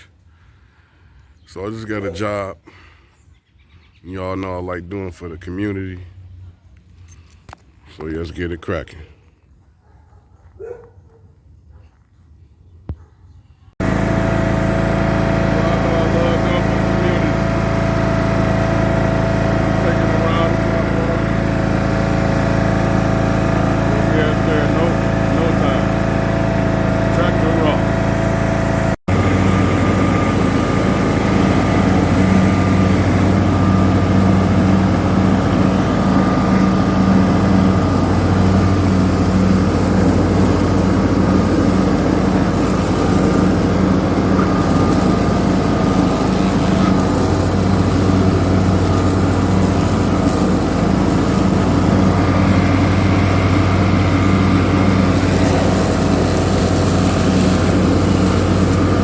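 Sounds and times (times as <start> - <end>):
tractor engine droning: 13.8 - 59.0.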